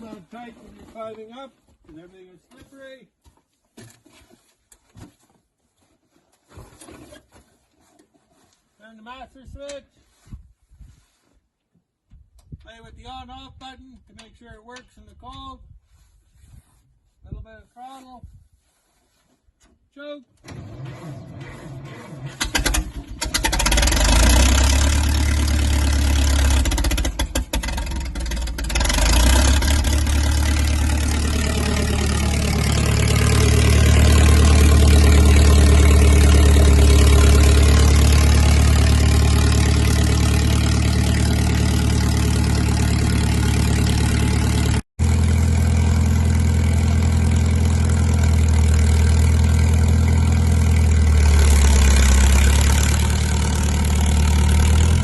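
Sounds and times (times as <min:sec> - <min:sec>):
engine cranking and running: 0:20.4 - 0:55.0.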